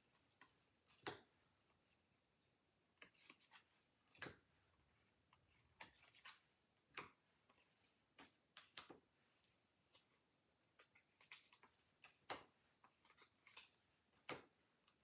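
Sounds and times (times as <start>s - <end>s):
cards tapping and slapping: 0.4s - 1.3s, 3.0s - 4.5s, 5.8s - 15.0s.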